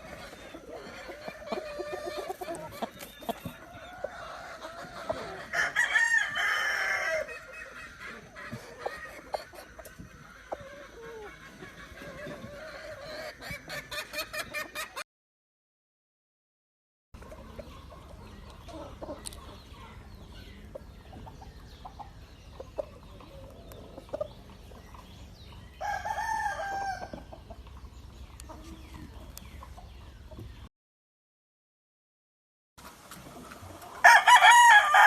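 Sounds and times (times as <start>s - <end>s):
chicken clucking: 0.0s - 15.0s, 17.2s - 30.7s, 33.0s - 35.0s
rooster crowing: 5.5s - 7.4s, 25.8s - 27.2s, 34.0s - 35.0s.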